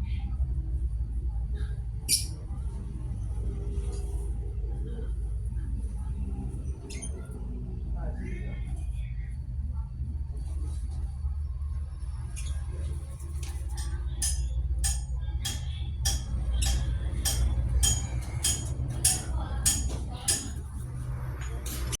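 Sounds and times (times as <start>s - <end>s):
low steady hum: 0.0s - 22.0s
sharp metallic clinks: 13.8s - 20.7s.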